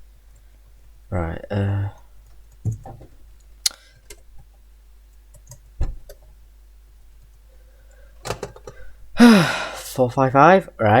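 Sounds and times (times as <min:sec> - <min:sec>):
computer clicks: 0:05.3 - 0:06.2.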